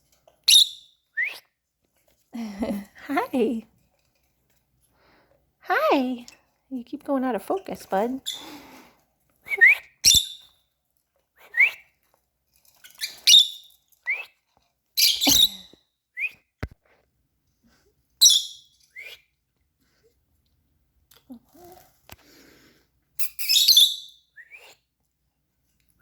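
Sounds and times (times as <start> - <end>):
lovebirds calling and chirping: 0.4 - 1.0, 9.6 - 10.6, 12.9 - 14.3, 15.0 - 15.8, 18.2 - 19.2, 23.2 - 24.8.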